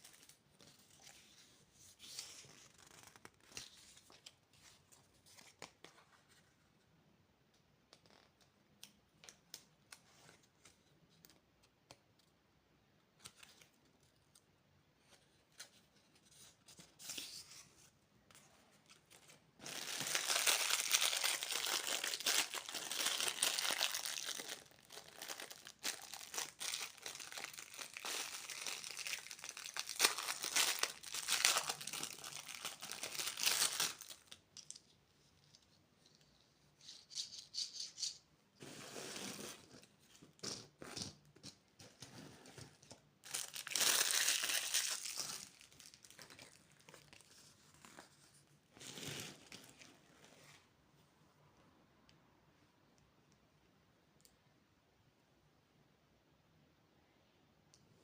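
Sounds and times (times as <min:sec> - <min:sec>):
candy wrappers crinkling and tearing: 0:19.6 - 0:34.8, 0:43.2 - 0:47.3.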